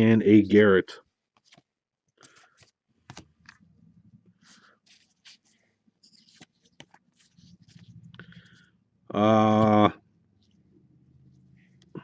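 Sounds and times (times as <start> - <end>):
trading cards being handled: 1.0 - 8.7.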